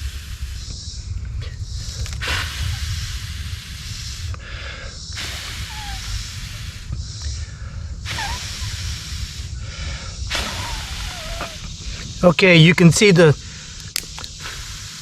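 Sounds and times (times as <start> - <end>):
person blowing into fire: 0.0 - 0.7, 1.8 - 7.0, 7.9 - 12.2, 14.3 - 15.0
faint bird chirps: 0.0 - 13.7.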